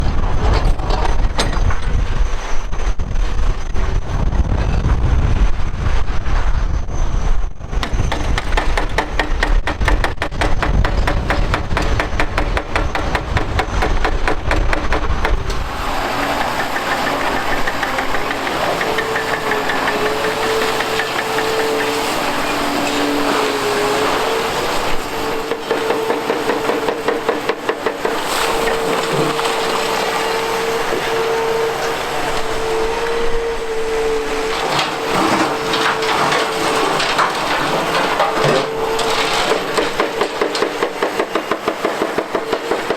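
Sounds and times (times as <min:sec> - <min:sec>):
heavy diesel engine under load: 0:07.8 - 0:42.9
hydraulic noise: 0:07.8 - 0:42.9
machine whine: 0:10.9 - 0:42.9.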